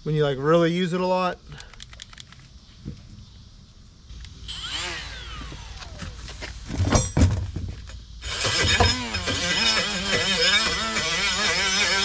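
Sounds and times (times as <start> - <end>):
die grinder whine: 4.4 - 6.5, 8.2 - 12.0
loud knocks and clunks: 6.7 - 9.4.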